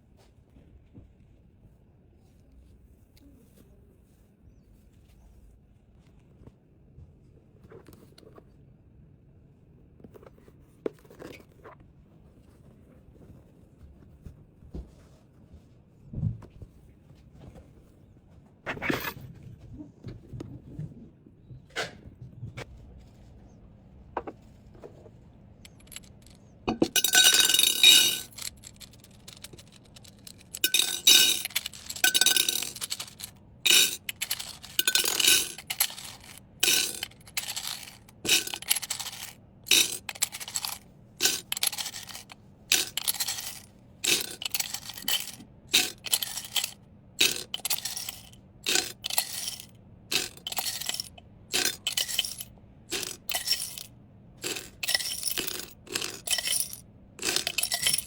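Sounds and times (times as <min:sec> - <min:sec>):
small hard items clinking: 0:25.6 - 0:58.0.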